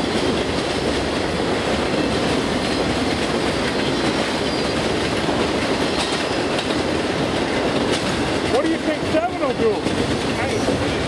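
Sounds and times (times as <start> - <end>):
train rumbling past: 0.0 - 11.0
wheels clattering on rails: 0.0 - 11.0.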